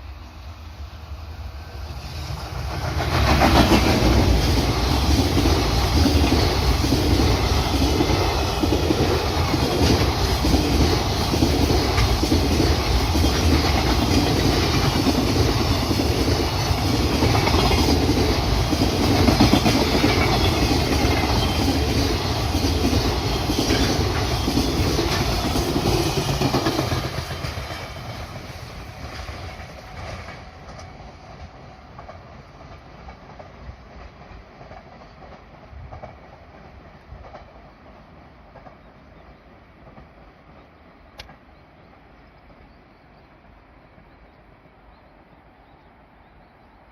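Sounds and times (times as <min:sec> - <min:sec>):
freight train rolling past: 0:00.0 - 0:46.9.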